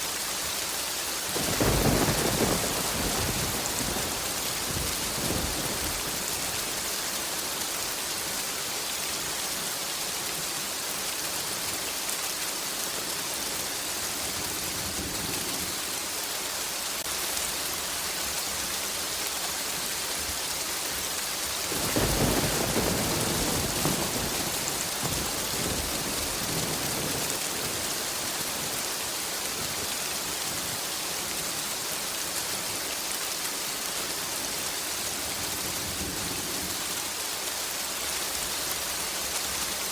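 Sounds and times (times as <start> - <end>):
steady rain falling: 0.0 - 39.9
thunder rumbling: 1.4 - 7.0, 21.7 - 28.8.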